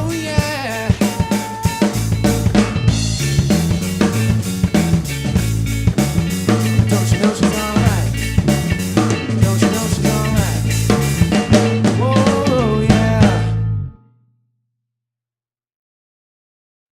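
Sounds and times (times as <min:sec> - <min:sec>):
drum kit with snare hits: 0:00.0 - 0:13.5
bass line: 0:00.0 - 0:14.0
guitar bending notes: 0:00.0 - 0:14.1.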